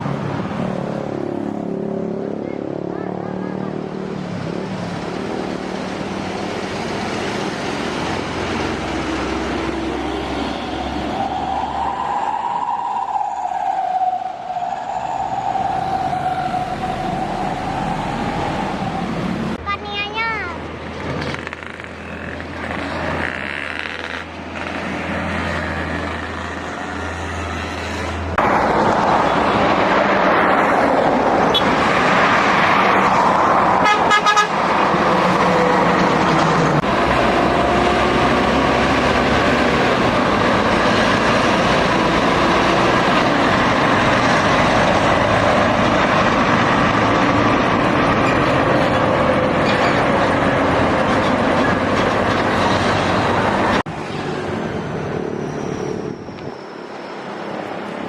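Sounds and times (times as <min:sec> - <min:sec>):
diesel truck driving past: 0:00.0 - 0:19.7, 0:24.3 - 0:58.0
truck horn: 0:33.8 - 0:34.6.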